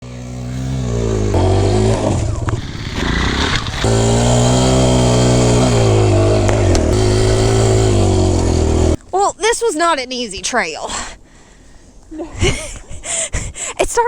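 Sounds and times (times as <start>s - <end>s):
dirt bike engine running: 0.0s - 9.0s.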